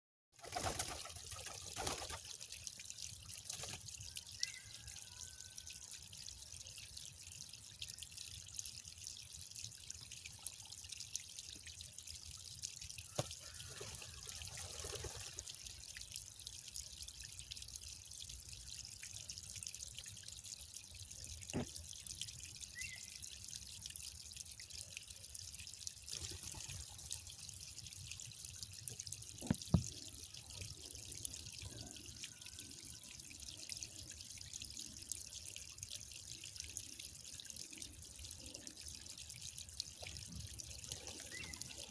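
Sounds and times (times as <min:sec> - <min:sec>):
water trickling and dripping: 0:00.4 - 0:41.9
sharp drips or clicks: 0:14.8 - 0:34.6.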